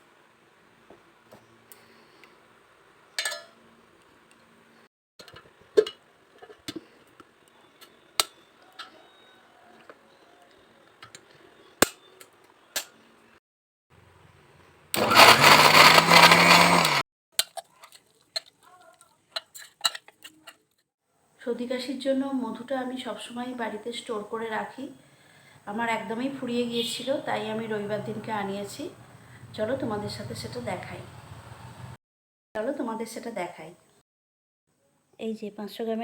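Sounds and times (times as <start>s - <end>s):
mixer grinder running: 15.0s - 17.0s.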